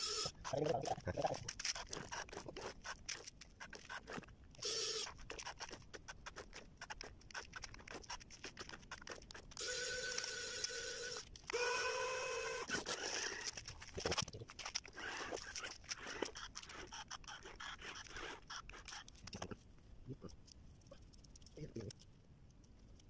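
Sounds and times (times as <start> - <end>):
small electric motor whine: 0.0 - 0.4, 9.6 - 13.5
gear motors clicking: 0.0 - 19.6.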